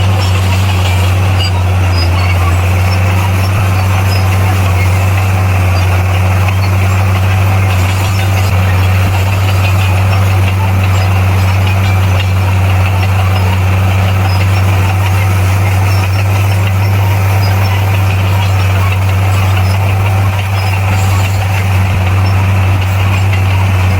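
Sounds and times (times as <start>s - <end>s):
bulldozer diesel engine humming: 0.0s - 23.9s.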